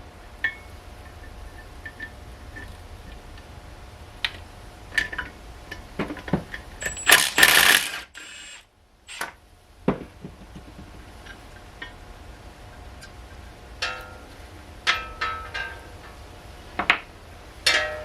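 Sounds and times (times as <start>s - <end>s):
loud hiss: 6.8s - 9.4s.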